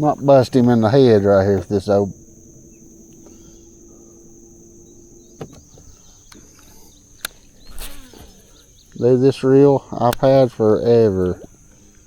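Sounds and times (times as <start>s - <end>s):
high-pitched insect chorus: 0.0s - 12.0s
short sharp clicks: 6.3s - 9.0s.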